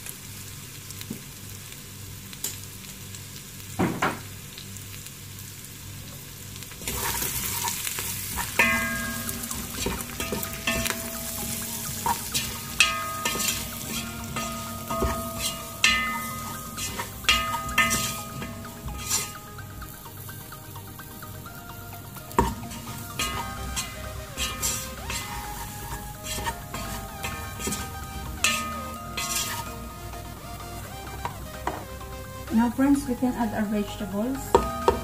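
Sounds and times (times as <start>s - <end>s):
chicken sizzling in a pot: 0.0s - 35.0s
utensil scraping a pot: 6.8s - 19.7s, 22.3s - 29.9s.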